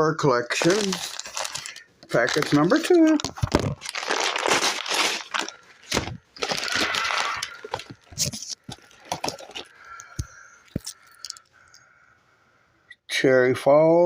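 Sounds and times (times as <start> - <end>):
packaging rustling and tearing: 0.5 - 11.4.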